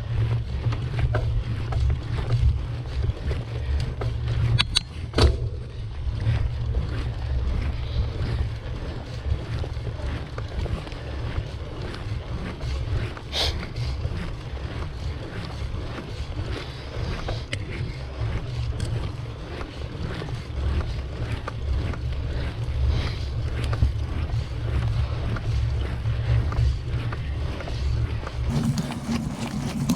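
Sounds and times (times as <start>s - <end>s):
bicycle clicks and rattles: 0.1s - 29.9s.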